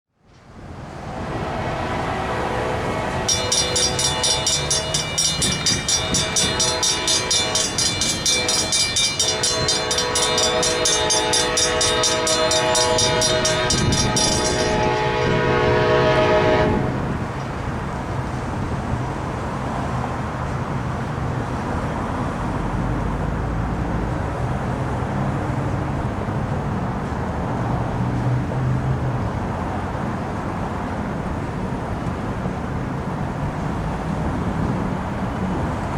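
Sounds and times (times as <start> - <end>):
train rumbling past: 0.2 - 35.9
train horn blowing: 0.8 - 17.4
crossing bell ringing: 1.0 - 16.9.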